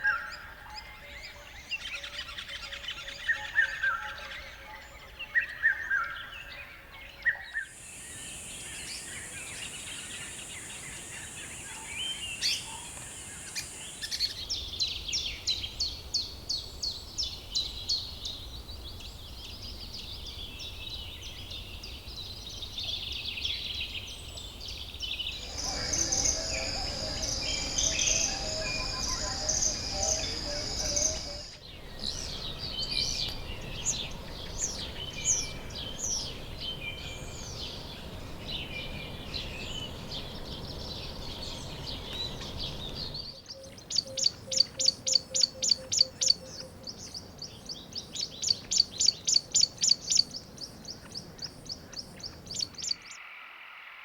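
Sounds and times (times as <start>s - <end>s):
birds calling and singing: 0.0s - 53.3s
loud bird chirps: 25.0s - 40.0s.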